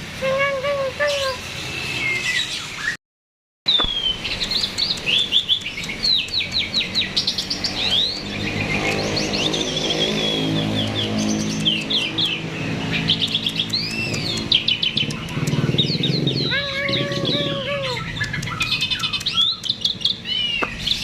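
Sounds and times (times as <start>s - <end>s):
starling chirping and whistling: 3.7s - 21.0s.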